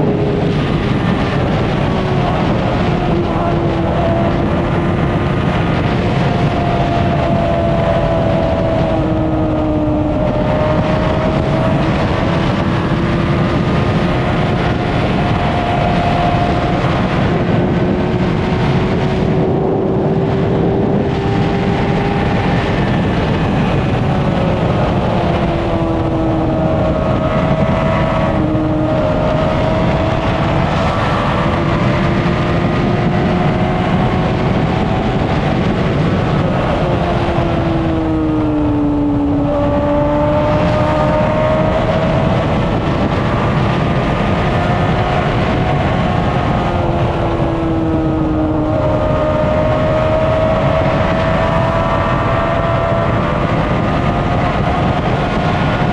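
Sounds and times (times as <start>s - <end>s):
motorcycle engine running: 0.0s - 55.9s
wind rush: 0.0s - 55.9s.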